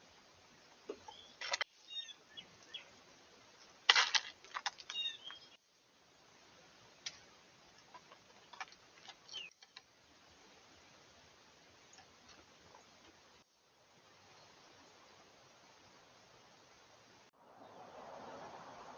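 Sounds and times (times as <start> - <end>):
small birds chirping: 0.6 - 3.8, 4.8 - 5.7, 7.8 - 9.9.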